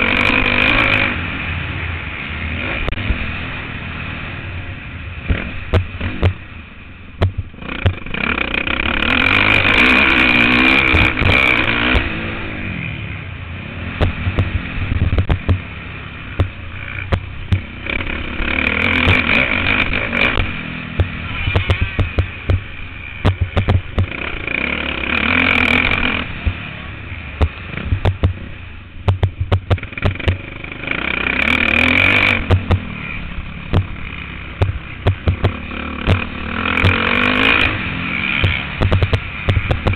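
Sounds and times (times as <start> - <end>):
motocross bike engine revving: 0.0 - 6.6, 7.2 - 39.9
knocks and rattles: 5.3 - 6.4, 7.2 - 8.1, 14.0 - 15.7, 18.9 - 24.2, 27.4 - 28.4, 29.0 - 30.4, 34.6 - 37.2, 38.4 - 39.9.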